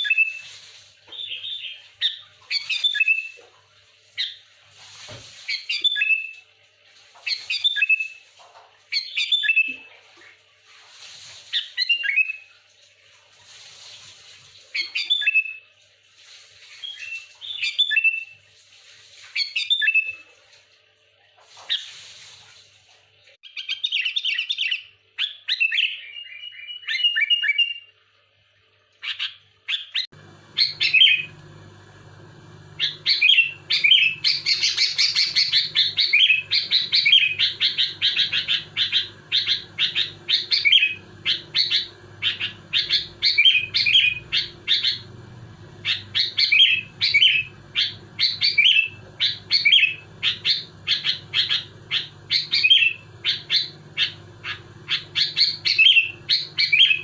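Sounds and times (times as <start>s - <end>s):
steady low hum: 30.1s - 57.0s
bulbul singing: 30.2s - 57.0s.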